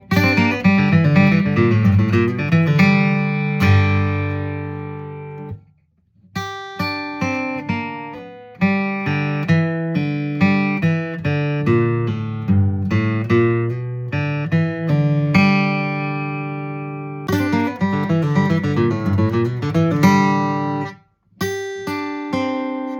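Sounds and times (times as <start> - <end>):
acoustic guitar flatpicking: 0.0 - 22.9.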